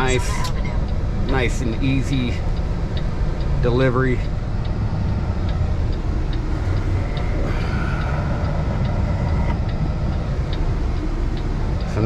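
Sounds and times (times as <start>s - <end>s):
road noise: 0.0s - 12.0s
truck diesel engine drone: 0.0s - 12.0s
faint light ticks: 0.4s - 4.8s.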